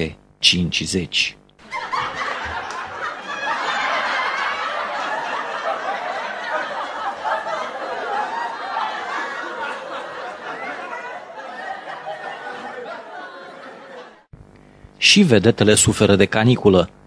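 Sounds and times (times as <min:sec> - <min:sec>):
audience laughter: 0:01.6 - 0:14.3.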